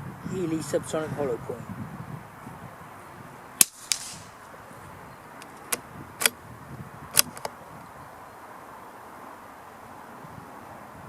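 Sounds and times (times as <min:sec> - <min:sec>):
rifle bolt clicks: 0:03.6 - 0:04.3, 0:07.1 - 0:07.5
rifle shot crack: 0:03.6 - 0:04.4
faint crack with hiss: 0:03.6 - 0:04.6, 0:07.1 - 0:08.0.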